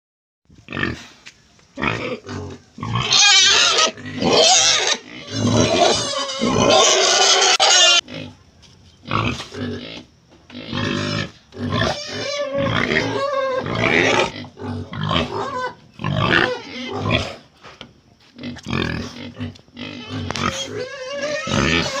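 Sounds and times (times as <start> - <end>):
wild boar squealing and grunting: 1.8 - 8.4, 10.6 - 17.5, 18.4 - 22.0.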